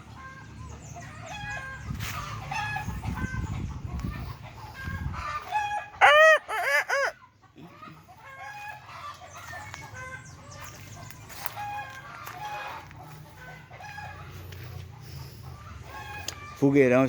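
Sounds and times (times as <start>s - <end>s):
chickens clucking: 0.0s - 17.0s
loud chicken call: 4.8s - 9.2s.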